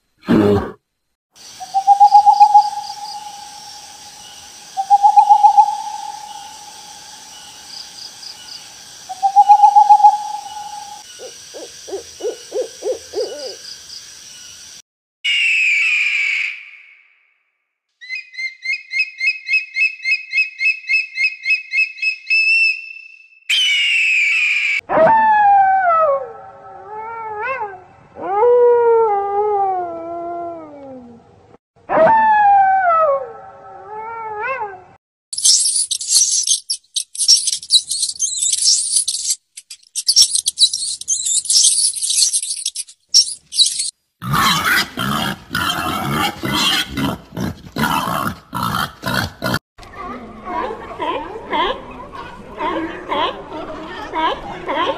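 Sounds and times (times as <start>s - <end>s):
high chirping trill: 1.6s - 6.8s, 9.1s - 11.1s, 35.4s - 43.9s.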